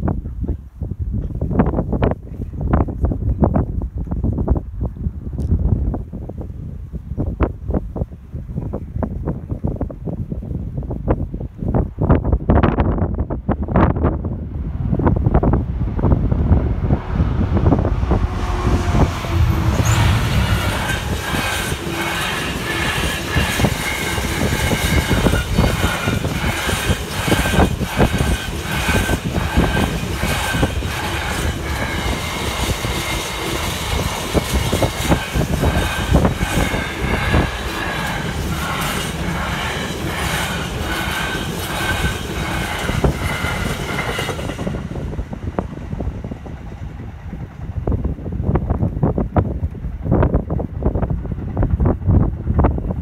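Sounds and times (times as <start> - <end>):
diesel locomotive heavy rumble: 0.0 - 53.0
freight train wheels clattering: 17.2 - 53.0
wheels squealing: 17.9 - 45.0.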